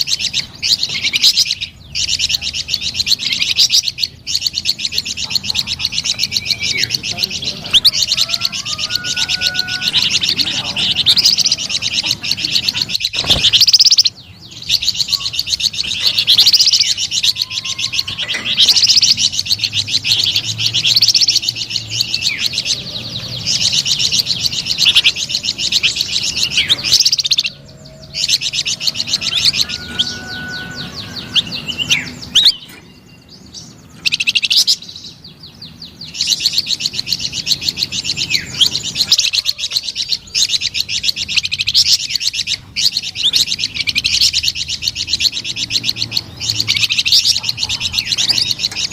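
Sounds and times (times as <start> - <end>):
songbird trilling: 0.0 - 48.9.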